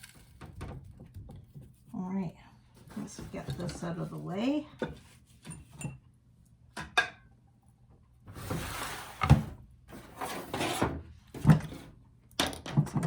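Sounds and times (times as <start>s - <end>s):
rustling sliding noise: 8.3s - 10.9s.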